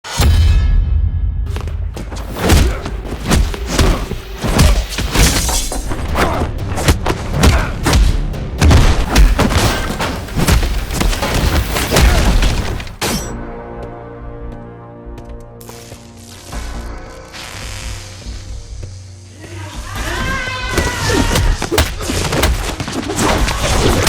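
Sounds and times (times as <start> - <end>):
action music: 0.0 - 24.0
punches and hits: 1.5 - 13.1, 20.8 - 24.0.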